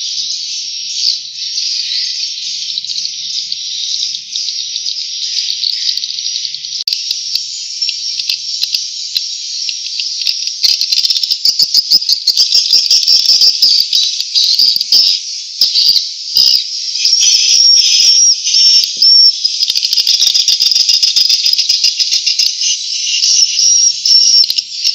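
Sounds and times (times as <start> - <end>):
bird chicks chirping: 0.0 - 24.9
high whistles: 17.0 - 19.5.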